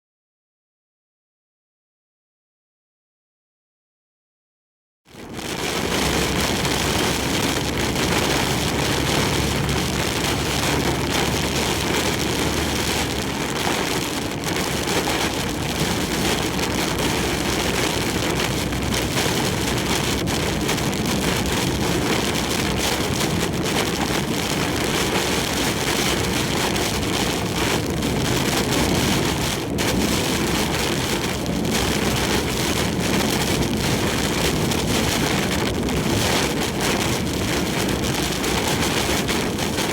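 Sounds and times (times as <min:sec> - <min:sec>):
heavy rain and wind on truck: 0:05.1 - 0:39.9
truck driving: 0:05.9 - 0:23.6.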